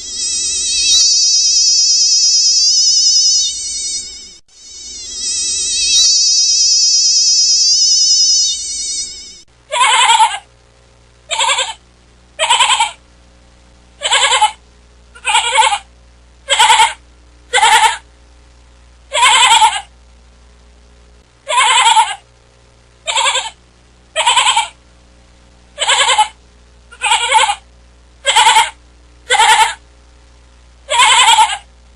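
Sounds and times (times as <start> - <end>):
wavering electronic tone: 0.0 - 9.5
farm animal bleating: 9.7 - 10.5, 11.3 - 11.8, 12.4 - 13.0, 14.0 - 14.6, 15.2 - 15.9, 16.5 - 18.0, 19.2 - 19.9, 21.5 - 22.2, 23.1 - 23.6, 24.2 - 24.8, 25.8 - 27.6, 28.2 - 29.8, 30.9 - 31.7.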